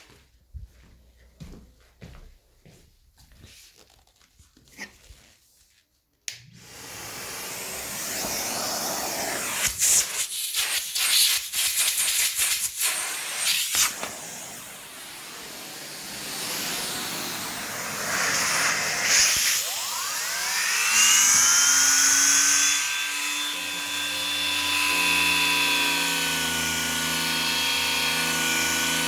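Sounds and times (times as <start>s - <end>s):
vacuum suction air rushing: 6.6s - 23.5s.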